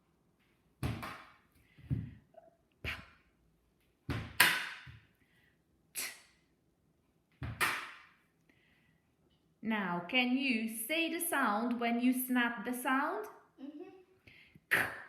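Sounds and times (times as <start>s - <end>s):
sharp slaps and thumps: 0.8s - 2.2s, 4.1s - 5.1s, 7.3s - 8.2s.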